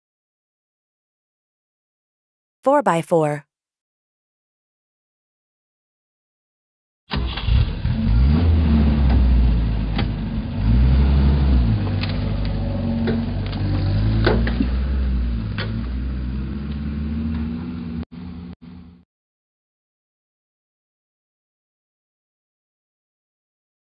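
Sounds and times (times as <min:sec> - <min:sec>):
engine running and revving: 0:07.2 - 0:18.8.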